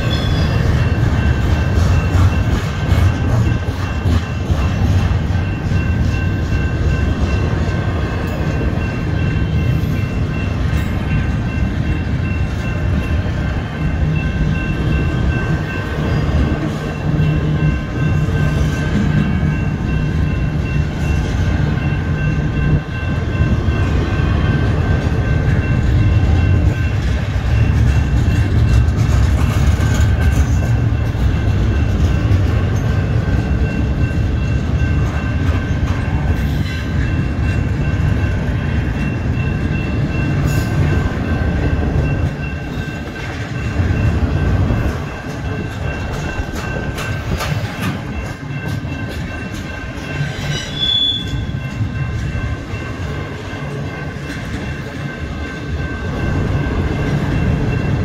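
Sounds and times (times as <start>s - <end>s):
crossing warning bell ringing: 0.0s - 58.0s
freight train wheels rattling: 0.0s - 58.0s.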